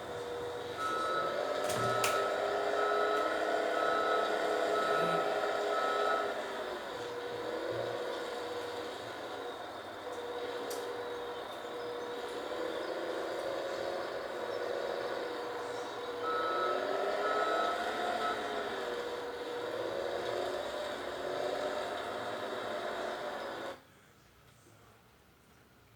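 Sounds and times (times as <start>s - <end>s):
back-up alarm beeping: 0.0s - 9.7s, 10.5s - 19.6s
heavy machine engine: 0.0s - 23.8s.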